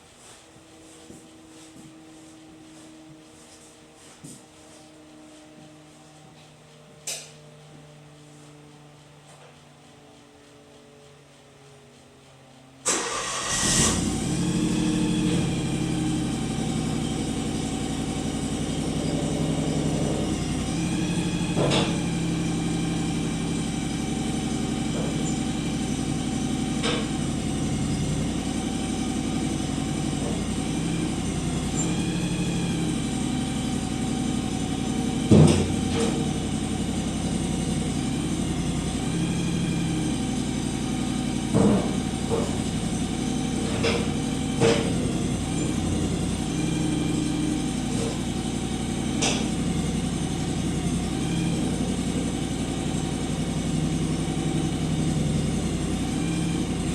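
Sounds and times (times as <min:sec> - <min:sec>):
garden tractor engine running: 0:04.2 - 0:56.9
whine: 0:13.8 - 0:56.9.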